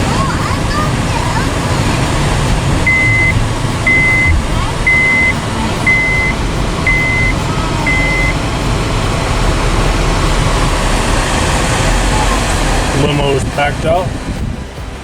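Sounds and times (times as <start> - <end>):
vehicle engine and road noise: 0.0 - 15.0
high electronic beeps: 2.8 - 8.5.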